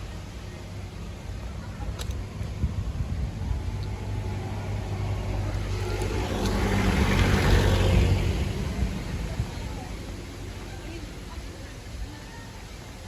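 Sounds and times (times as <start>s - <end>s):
steady low rumble: 0.0s - 12.1s
motor vehicle passing: 1.0s - 11.4s.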